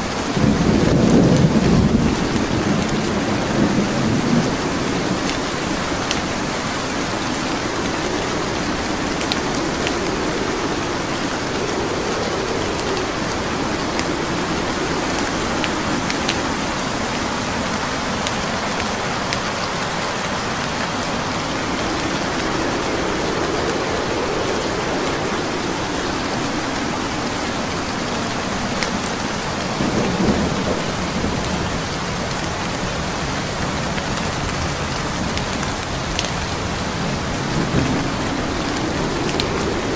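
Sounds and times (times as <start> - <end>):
burning wood crackling: 0.0 - 39.9
steady rain: 0.0 - 39.9
low rumbles: 0.6 - 32.5.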